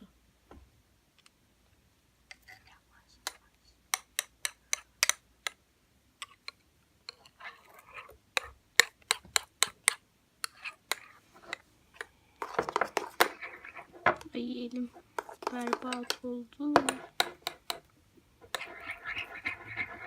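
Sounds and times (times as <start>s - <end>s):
spoon scraping slime: 6.2s - 20.0s.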